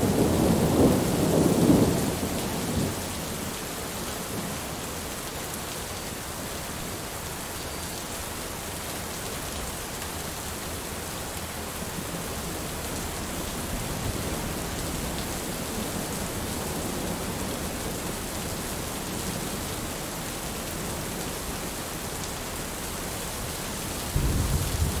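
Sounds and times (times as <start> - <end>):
heavy rain falling: 0.0 - 25.0
thunder rumble: 24.0 - 25.0.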